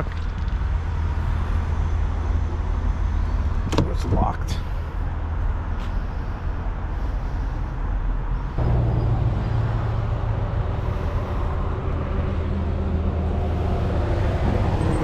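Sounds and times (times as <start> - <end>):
diesel truck engine idling: 4.2 - 15.0.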